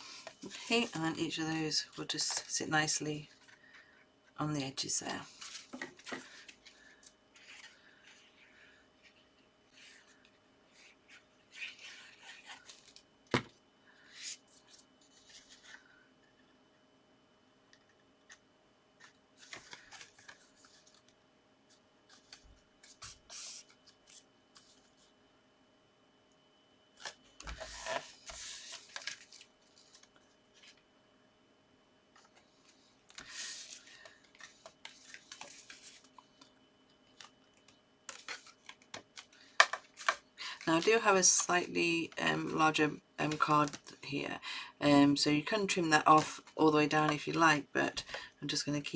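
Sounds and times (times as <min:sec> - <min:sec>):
paper rustling and scraping: 0:00.0 - 0:02.6, 0:05.0 - 0:13.1, 0:14.0 - 0:16.0, 0:19.0 - 0:25.1, 0:27.0 - 0:30.8, 0:32.2 - 0:36.5, 0:37.1 - 0:42.6.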